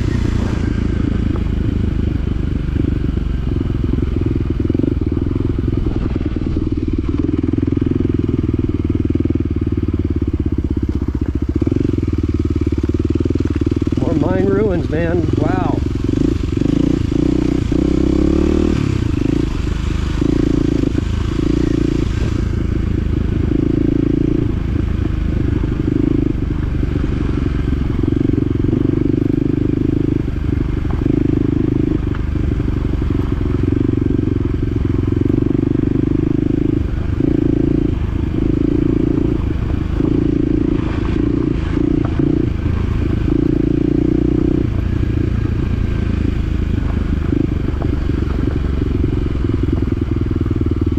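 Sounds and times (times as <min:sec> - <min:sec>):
utv engine revving: 0:00.0 - 0:08.5, 0:13.2 - 0:50.6.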